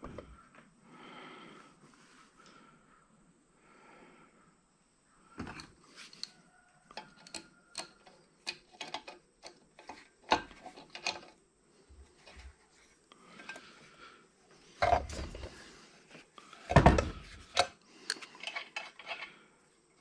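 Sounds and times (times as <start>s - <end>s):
hand tools clicking and knocking: 6.9s - 11.4s, 16.6s - 19.3s.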